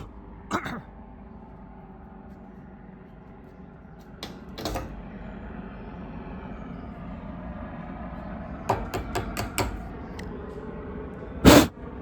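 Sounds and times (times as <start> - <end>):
puff of breath blowing: 11.4 - 11.7.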